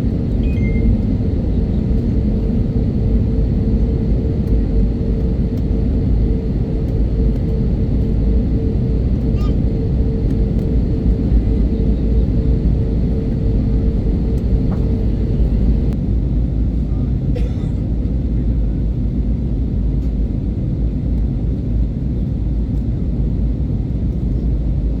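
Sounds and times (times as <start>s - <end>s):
jet cabin engine rumble: 0.0s - 25.0s
faint pulsing tone: 0.3s - 16.0s.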